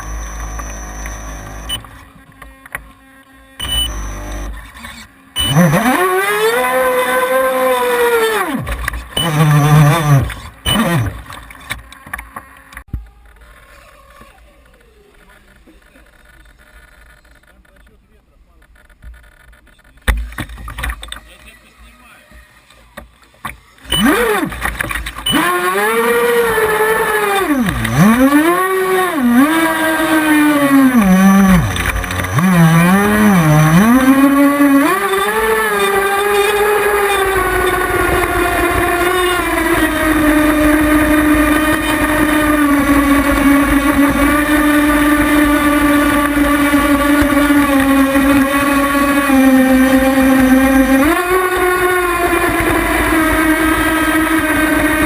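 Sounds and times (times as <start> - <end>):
small boat engine revving: 0.0 - 2.2, 3.0 - 11.5, 23.8 - 55.0.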